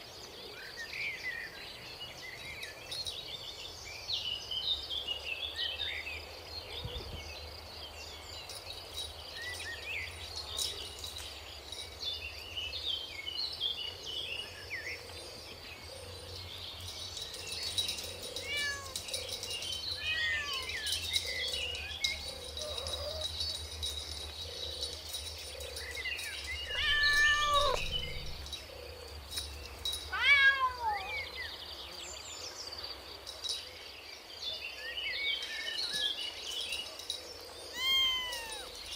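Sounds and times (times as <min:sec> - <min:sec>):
kittens mewing: 0:18.4 - 0:19.1, 0:20.0 - 0:20.9, 0:26.6 - 0:28.5, 0:37.7 - 0:38.8.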